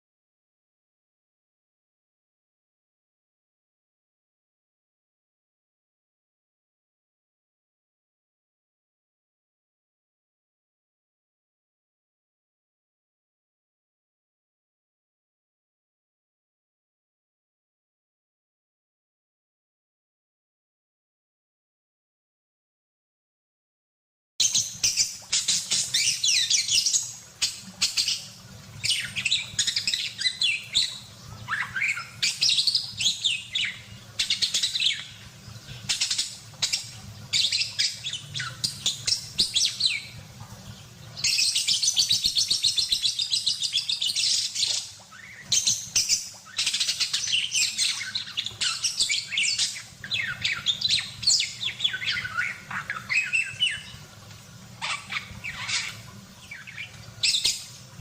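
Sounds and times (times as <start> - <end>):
budgerigar chattering: 54.8 - 56.0.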